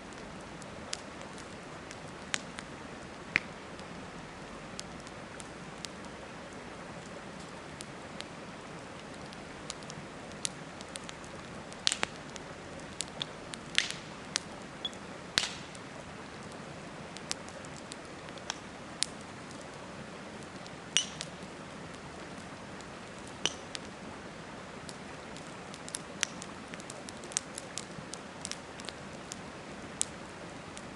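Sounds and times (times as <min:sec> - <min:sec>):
campfire crackling: 0:00.0 - 0:30.9
burning wood popping: 0:00.1 - 0:03.9, 0:09.0 - 0:15.8, 0:16.4 - 0:24.0, 0:24.8 - 0:30.2.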